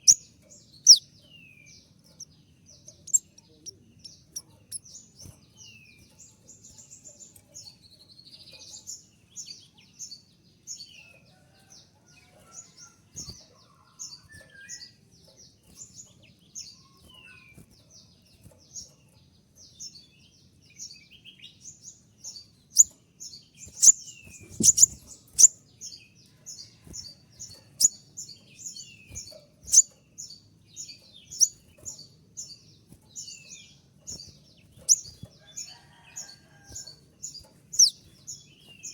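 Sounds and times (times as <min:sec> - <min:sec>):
sunbird calling high chips: 0:23.7 - 0:25.6.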